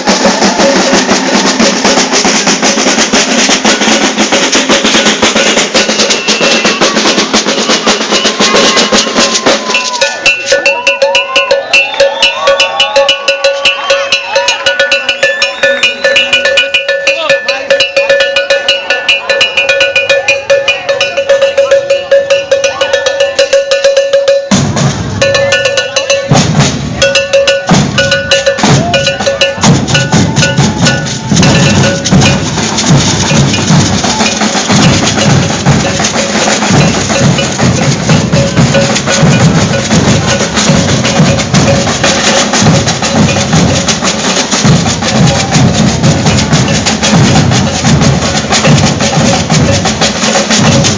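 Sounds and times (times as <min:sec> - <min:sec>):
held high tone: 0:00.0 - 0:44.1
iron bells striking: 0:00.0 - 0:50.9
snare drums: 0:00.0 - 0:50.9
deep bass drums: 0:24.5 - 0:50.9.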